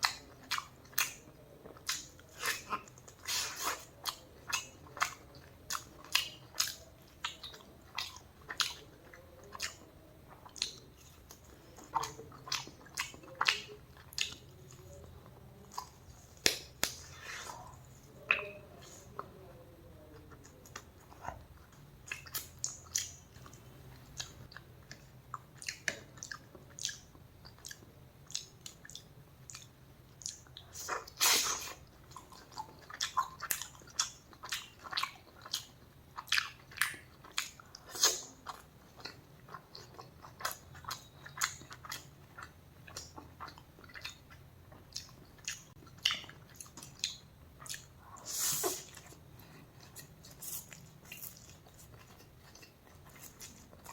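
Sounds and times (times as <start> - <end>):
person chewing food: 0.0 - 19.5, 20.1 - 53.9
mouth clicks and smacks: 15.7 - 17.2.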